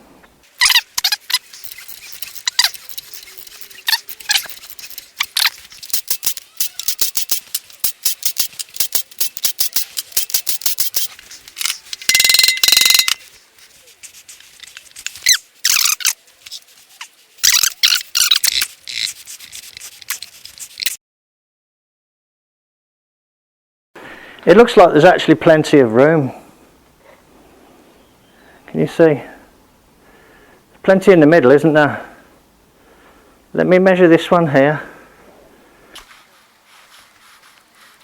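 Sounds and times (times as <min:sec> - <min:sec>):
ratchet wrench clicking: 0:00.6 - 0:13.3, 0:17.4 - 0:19.2
squeaky rasping: 0:00.6 - 0:21.0.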